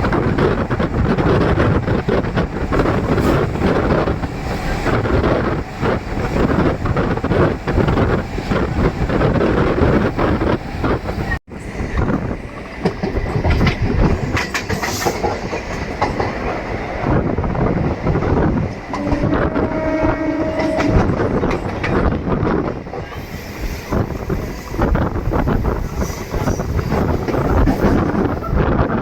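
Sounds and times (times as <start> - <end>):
train rumble: 0.0 - 29.0
wheels clattering over rail joints: 12.8 - 16.8.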